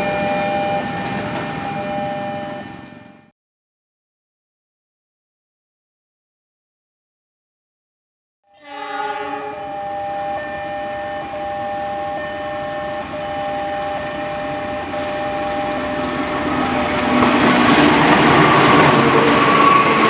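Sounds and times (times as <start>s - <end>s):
steady high tones: 0.0s - 3.2s, 8.6s - 20.0s
train rumbling past: 0.0s - 3.2s, 8.8s - 20.0s.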